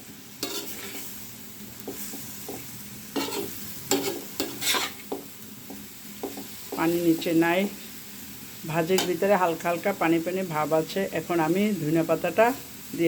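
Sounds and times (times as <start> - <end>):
vegetables sizzling: 0.0 - 13.0
spatula scraping a pot: 0.4 - 1.1, 1.9 - 5.2.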